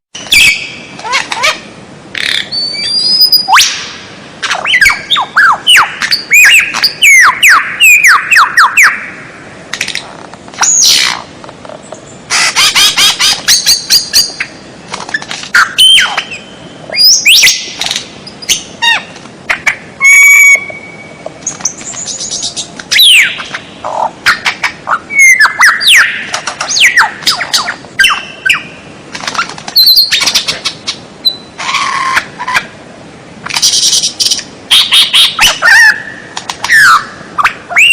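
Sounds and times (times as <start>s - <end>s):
songbird singing: 0.1s - 32.8s, 33.5s - 37.9s.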